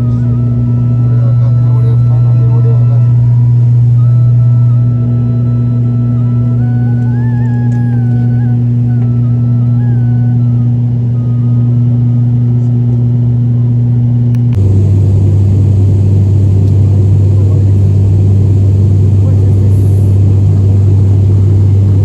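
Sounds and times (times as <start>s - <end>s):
airliner engine drone in cabin: 0.0s - 22.0s.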